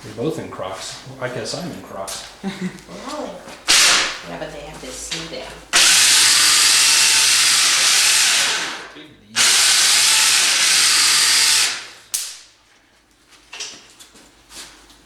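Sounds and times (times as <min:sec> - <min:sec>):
electric winch motor running: 0:02.9 - 0:12.2
sharp click: 0:12.1 - 0:12.5.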